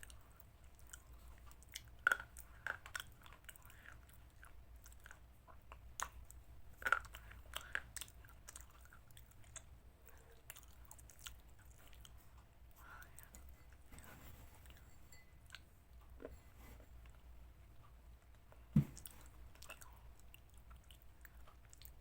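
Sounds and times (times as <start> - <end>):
person chewing wetly: 0.0 - 13.3, 19.0 - 22.0.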